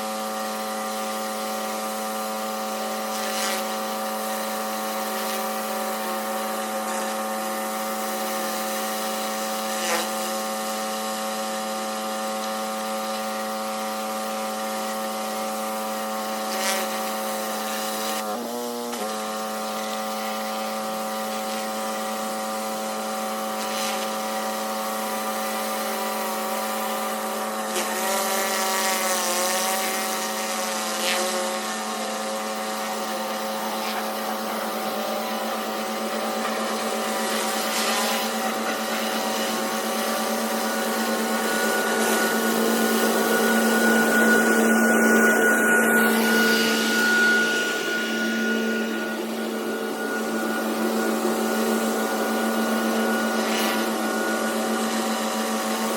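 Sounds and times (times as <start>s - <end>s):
pressure washer motor hum: 0.0s - 55.9s.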